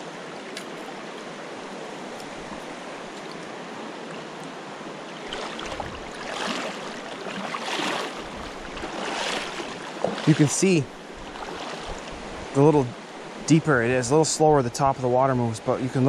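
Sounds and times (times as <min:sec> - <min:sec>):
river rapids rushing: 0:00.0 - 0:13.4.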